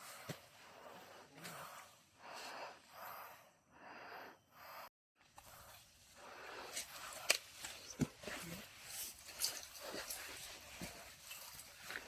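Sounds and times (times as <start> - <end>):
heavy breathing: 0.0 - 7.3.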